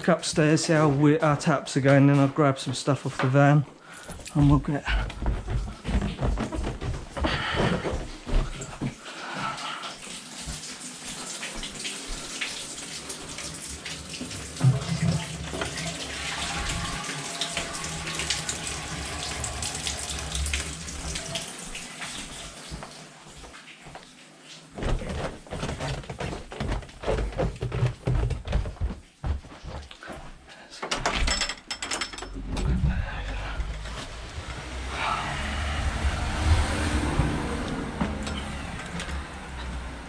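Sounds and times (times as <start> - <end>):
tap water running into sink: 4.0 - 29.0
knocks and thuds: 4.4 - 8.9.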